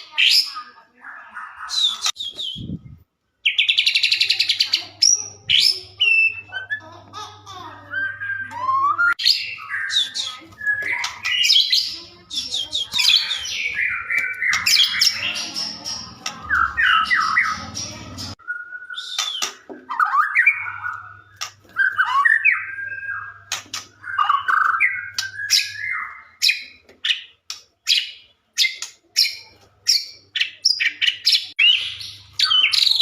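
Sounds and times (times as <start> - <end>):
bird singing varied song: 7.9 - 33.0.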